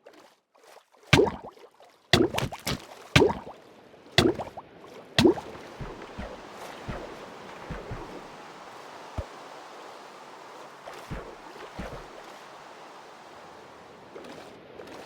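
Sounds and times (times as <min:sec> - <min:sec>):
dull knocks: 0:05.2 - 0:07.1
rain hiss: 0:05.3 - 0:14.2.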